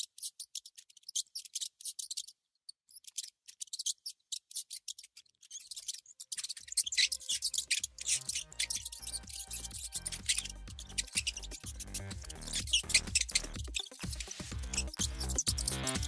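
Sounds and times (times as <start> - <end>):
magnetic balls clicking together: 5.7 - 16.0
background music: 7.0 - 16.0.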